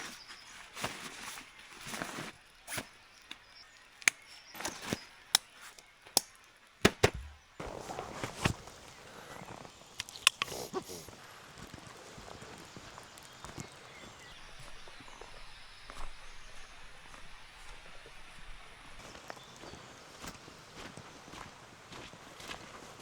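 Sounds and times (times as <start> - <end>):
rustling: 0.0 - 2.9, 7.1 - 14.2.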